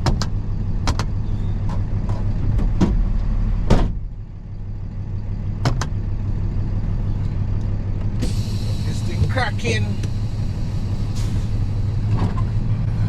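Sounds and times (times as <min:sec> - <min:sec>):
clicks and knocks in cab: 0:00.0 - 0:04.1, 0:05.6 - 0:06.0
truck engine idling: 0:00.0 - 0:13.0.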